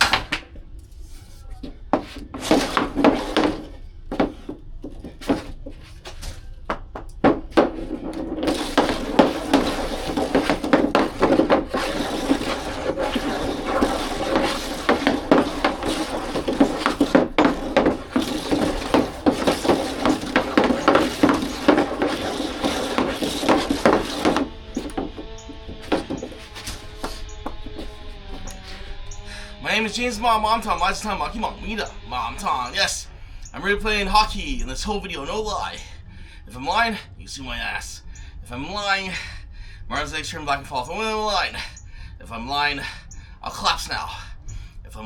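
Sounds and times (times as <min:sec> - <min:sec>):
hockey stick and ball clattering: 0:00.0 - 0:32.0
steady rushing noise: 0:07.6 - 0:33.2.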